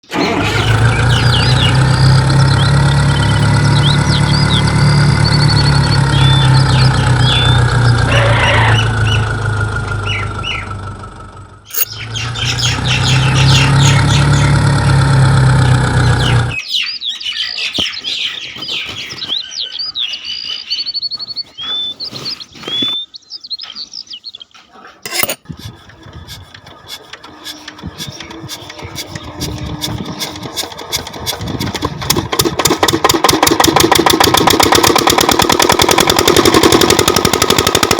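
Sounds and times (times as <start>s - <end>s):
small motor running: 0.0s - 16.6s, 25.1s - 37.9s
birds chirping: 0.0s - 32.4s.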